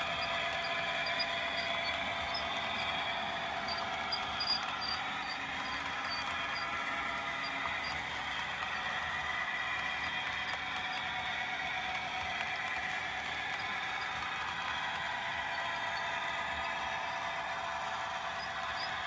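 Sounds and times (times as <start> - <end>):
high-pitched motor whine: 0.0 - 12.3.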